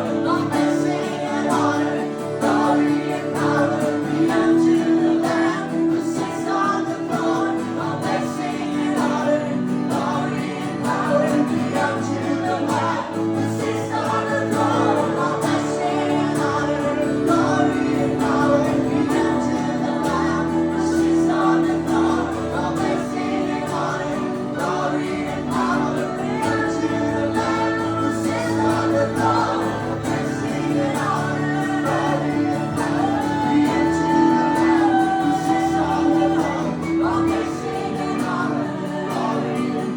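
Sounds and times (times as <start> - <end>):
worship singing: 0.0 - 39.9
sustained instrumental chords: 12.2 - 39.9.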